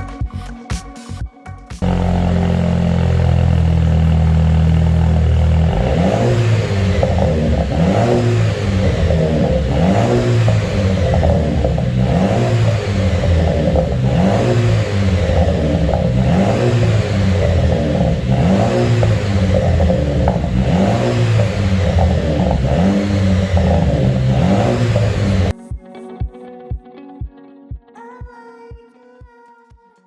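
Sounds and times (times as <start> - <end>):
background music with thumping beat: 0.0 - 1.9, 5.8 - 28.8
car engine revving: 1.8 - 25.5.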